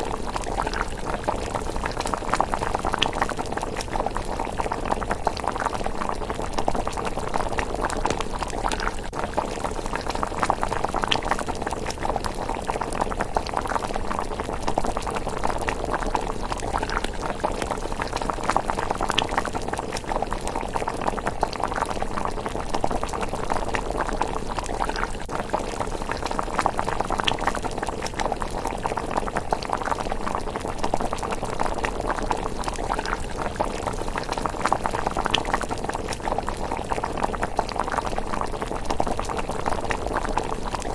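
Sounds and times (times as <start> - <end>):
porridge bubbling in a pot: 0.0 - 40.9.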